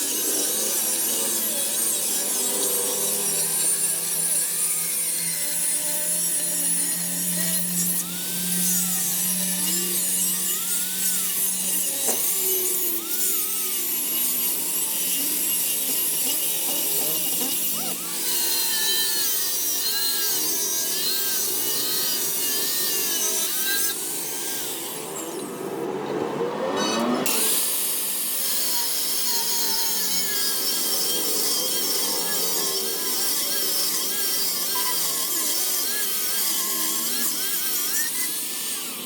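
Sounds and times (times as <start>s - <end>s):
power tool grinding metal: 0.0s - 39.0s.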